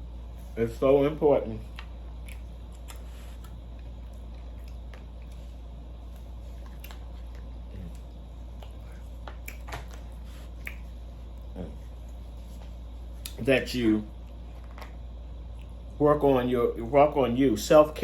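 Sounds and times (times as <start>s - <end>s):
low hum: 0.0s - 18.0s
mouth chewing clicks and smacks: 1.7s - 5.4s, 6.6s - 12.2s, 15.4s - 15.9s.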